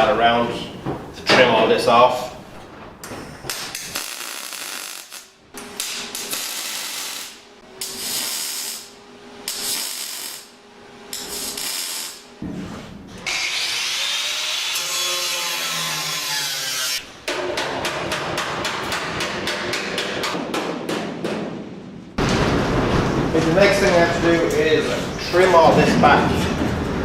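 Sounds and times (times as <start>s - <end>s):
power tool on sheet metal: 13.2s - 17.0s.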